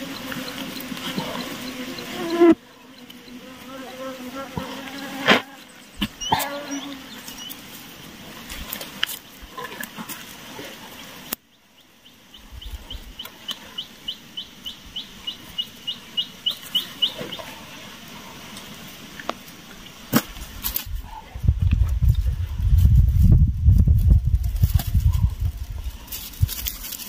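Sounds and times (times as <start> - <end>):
bird calling upslurred notes: 0.0 - 7.6.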